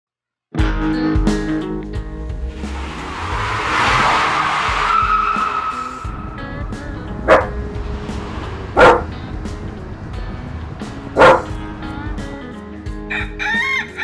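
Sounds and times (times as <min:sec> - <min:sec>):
background music: 0:00.6 - 0:14.0
dog barking: 0:07.3 - 0:07.5, 0:08.8 - 0:09.1, 0:11.2 - 0:11.5.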